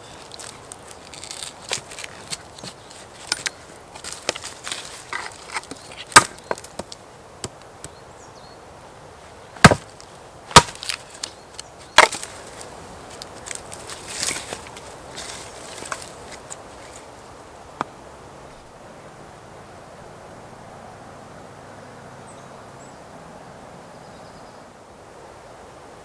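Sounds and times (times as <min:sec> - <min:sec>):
wood cracking and snapping: 0:00.2 - 0:07.0, 0:09.6 - 0:16.5
axe striking wood: 0:05.2 - 0:07.6, 0:09.6 - 0:11.3, 0:12.0 - 0:12.4.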